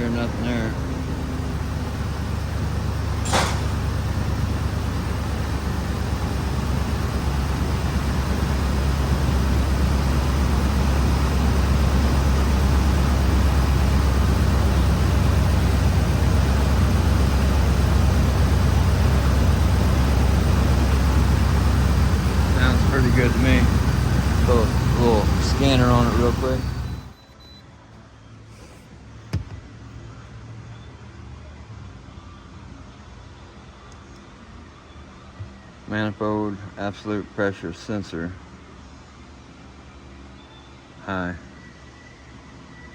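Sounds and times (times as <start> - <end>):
car engine idling: 0.0 - 27.2.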